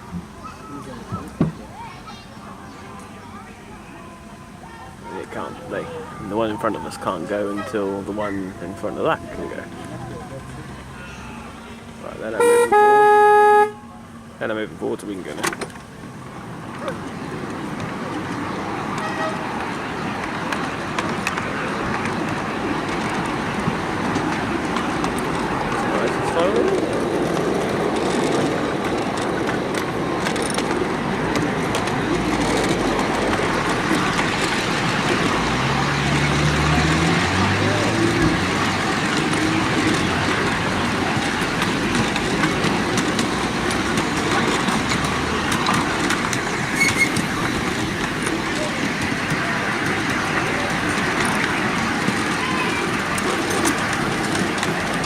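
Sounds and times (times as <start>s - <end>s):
miniature train wheels on rails: 14.5s - 55.0s.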